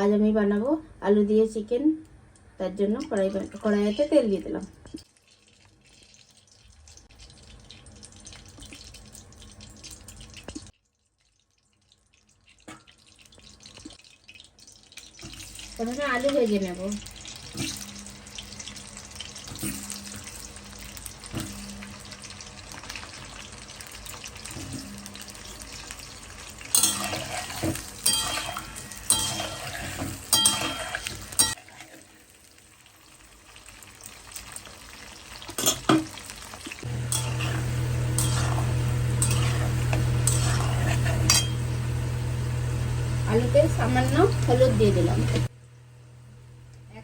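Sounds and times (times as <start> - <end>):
potatoes sizzling in oil: 12.6 - 45.9
spatula scraping metal pan: 26.7 - 31.9, 37.1 - 41.7
steady low hum: 36.8 - 47.0.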